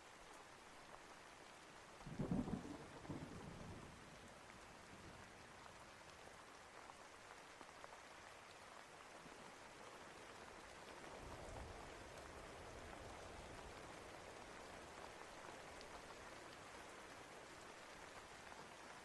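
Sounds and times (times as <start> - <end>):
steady rain hiss: 0.0 - 19.0
thunder rumble: 2.1 - 4.0.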